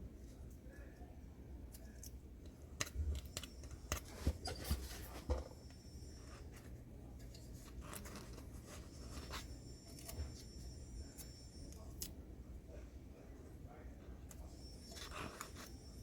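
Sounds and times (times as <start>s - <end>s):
tools scratching: 2.8s - 12.0s, 14.3s - 16.0s.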